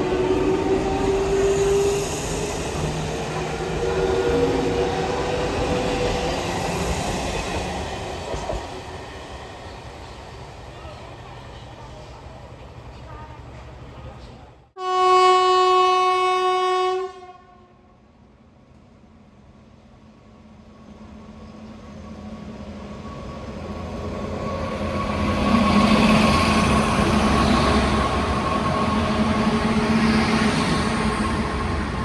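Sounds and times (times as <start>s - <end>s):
train passing at speed: 0.0s - 14.4s, 18.0s - 32.0s
electric train horn blast: 14.8s - 17.8s.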